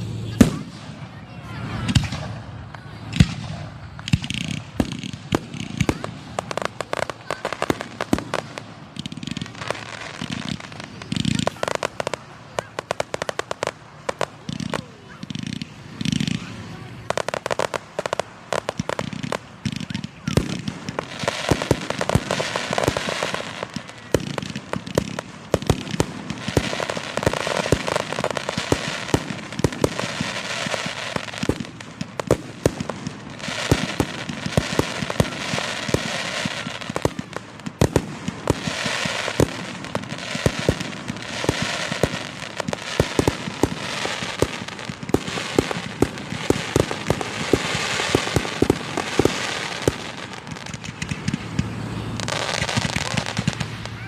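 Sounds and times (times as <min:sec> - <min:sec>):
fireworks crackling and banging: 0:00.0 - 0:54.0.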